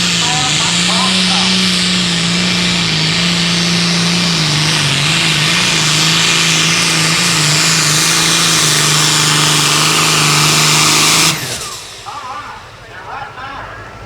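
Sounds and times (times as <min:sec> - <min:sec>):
diesel engine running at high revs: 0:00.0 - 0:14.0
strong hiss: 0:05.7 - 0:14.0.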